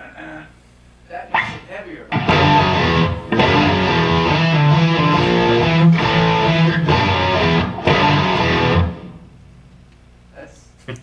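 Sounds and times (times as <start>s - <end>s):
electric guitar playing heavy riff: 1.3s - 9.2s.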